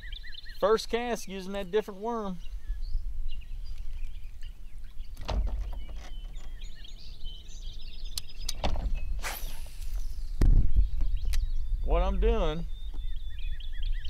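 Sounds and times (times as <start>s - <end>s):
birds chirping: 0.0s - 14.0s
sharp knocks and rustles: 5.1s - 6.7s, 8.5s - 11.1s.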